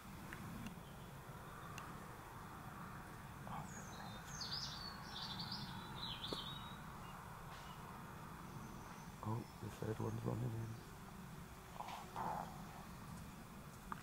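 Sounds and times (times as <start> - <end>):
low background hiss: 0.0 - 14.0
small bird twittering: 3.5 - 7.9.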